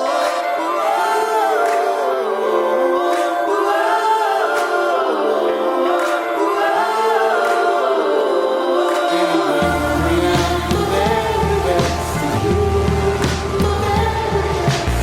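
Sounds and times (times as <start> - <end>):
a cappella choir singing: 0.0 - 15.0
low bass line: 9.6 - 15.0.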